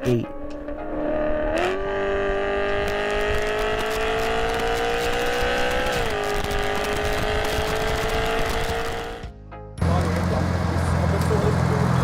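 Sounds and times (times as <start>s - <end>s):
car engine revving hard: 1.0s - 9.3s.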